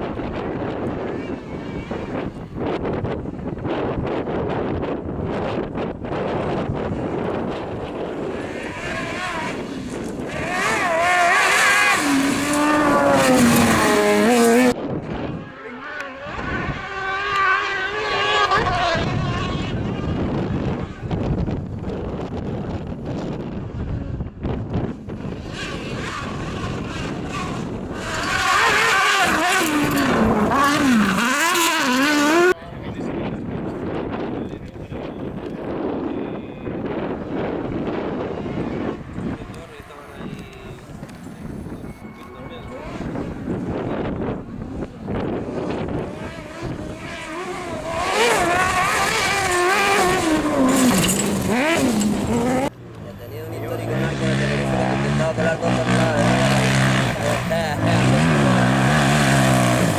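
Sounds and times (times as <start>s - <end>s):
rally car engine revving: 0.0s - 32.6s, 36.6s - 59.9s
wind on microphone: 0.0s - 59.9s.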